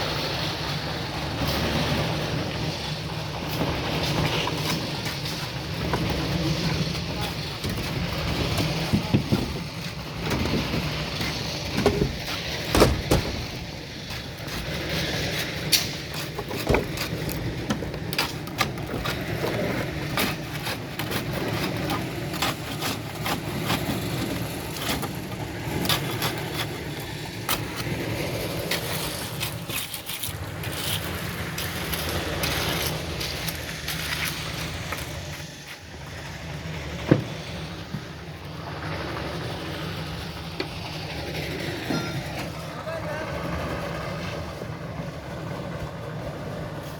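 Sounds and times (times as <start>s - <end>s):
engine running: 0.0s - 46.9s
tools scraping and knocking: 4.1s - 28.0s.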